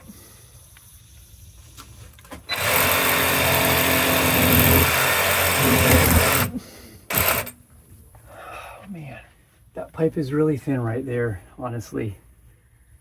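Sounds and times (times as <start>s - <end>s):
handheld power tool running: 2.4s - 7.6s.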